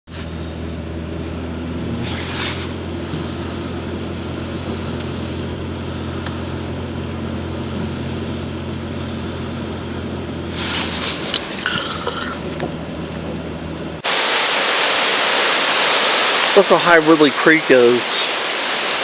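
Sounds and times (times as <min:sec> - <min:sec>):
low motor hum: 0:00.1 - 0:14.2
rushing hiss: 0:10.5 - 0:12.4, 0:14.0 - 0:19.0.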